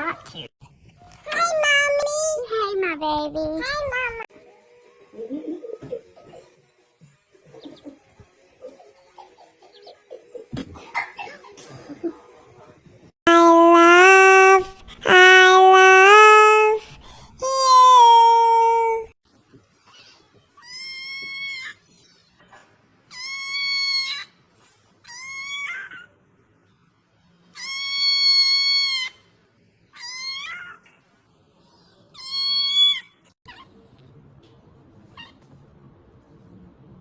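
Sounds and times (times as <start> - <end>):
cat meowing: 13.3 - 16.8, 17.4 - 19.1.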